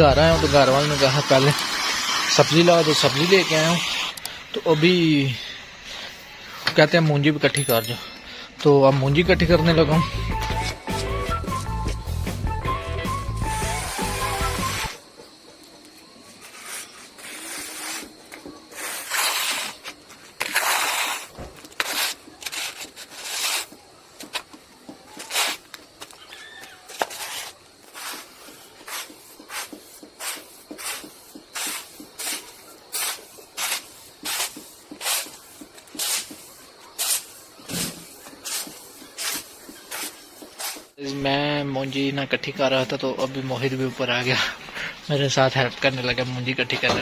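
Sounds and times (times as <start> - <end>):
floor wiper scraping rice: 0.1 - 4.1, 13.4 - 15.0, 16.2 - 23.8, 26.7 - 41.0.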